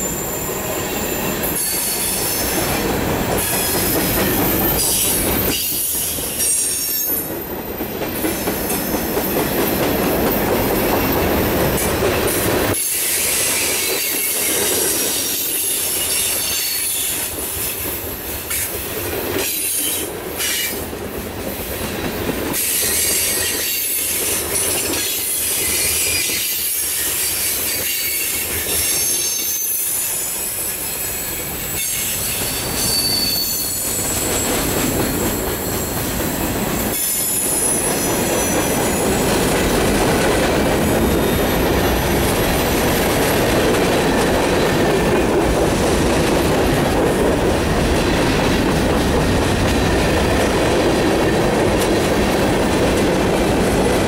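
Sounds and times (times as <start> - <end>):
high wheel squeal: 0.0 - 7.3, 25.3 - 39.5
train wheels rolling on rail: 0.0 - 54.0.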